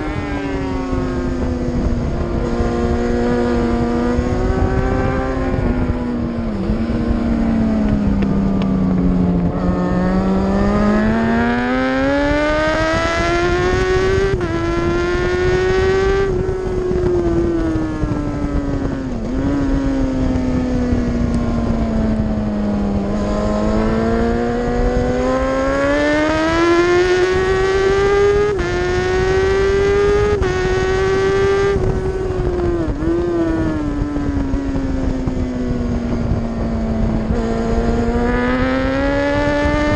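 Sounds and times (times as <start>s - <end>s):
racing motorcycle engine: 0.0s - 39.9s
rushing wind noise: 0.0s - 39.9s.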